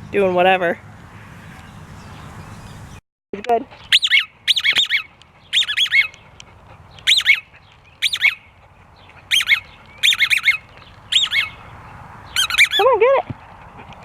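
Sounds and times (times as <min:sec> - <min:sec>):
squeaky dog toy squeaking: 0:03.9 - 0:06.2, 0:07.0 - 0:07.4, 0:09.3 - 0:10.6, 0:12.4 - 0:13.2.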